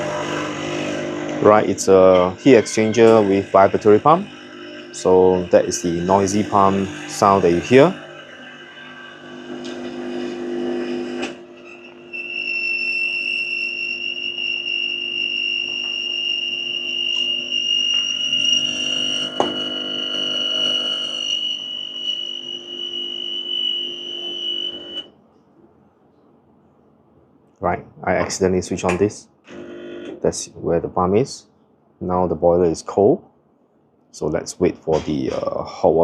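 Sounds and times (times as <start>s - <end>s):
espresso machine vibratory pump: 0.0s - 25.0s
high whine: 0.0s - 25.2s.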